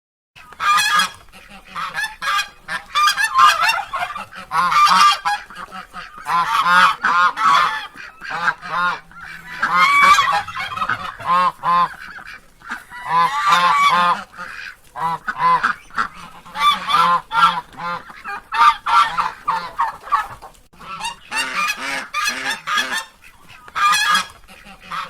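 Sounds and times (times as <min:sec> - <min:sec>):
ducks quacking: 0:00.4 - 0:25.0.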